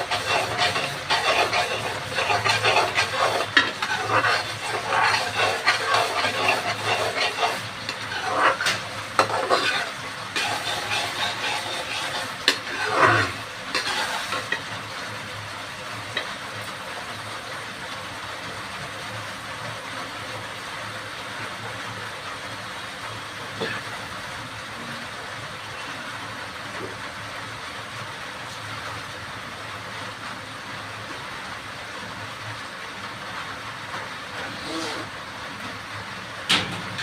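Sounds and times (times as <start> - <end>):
spatula scraping a pan: 0.0 - 14.9, 16.1 - 16.4, 34.4 - 35.2
food sizzling: 0.0 - 37.0.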